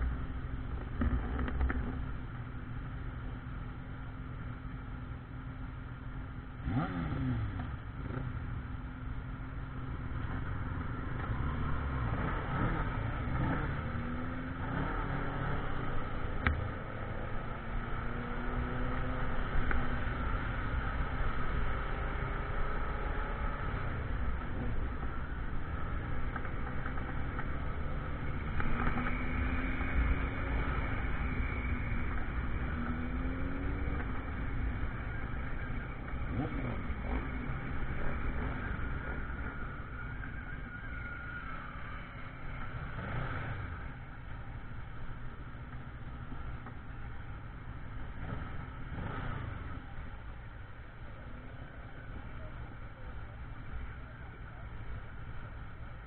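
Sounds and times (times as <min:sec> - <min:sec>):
motorcycle engine rumble: 0:00.0 - 0:56.0.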